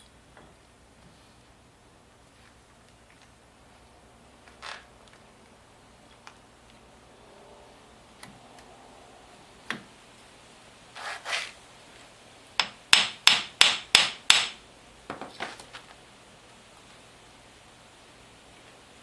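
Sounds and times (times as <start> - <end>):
brief scrape: 11.0 - 11.6
hammer striking metal: 12.6 - 14.6.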